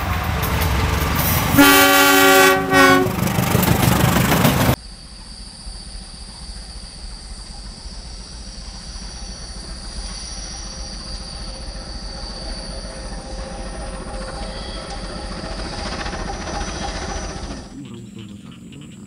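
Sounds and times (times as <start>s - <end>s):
passenger train rumbling past: 0.0s - 4.8s, 6.1s - 19.0s
thin high squeal: 9.0s - 17.7s.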